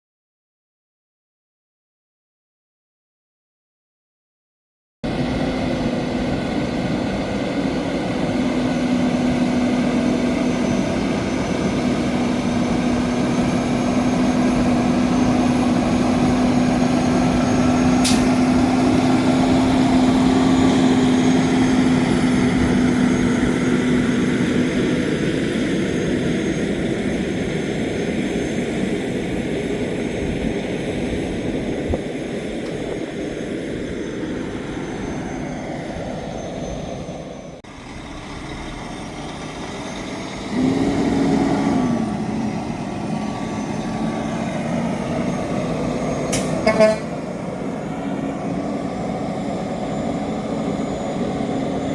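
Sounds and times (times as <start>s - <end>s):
road and tyre noise: 5.0s - 51.9s
truck diesel engine drone: 5.0s - 51.9s
brief high click: 18.0s - 18.3s, 46.3s - 47.0s.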